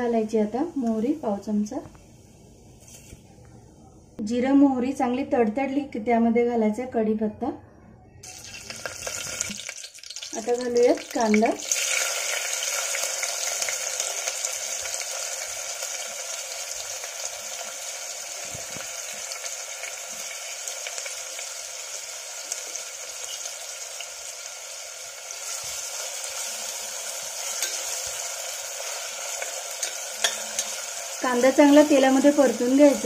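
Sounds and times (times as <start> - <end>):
onion sizzling in hot oil: 8.2 - 33.0.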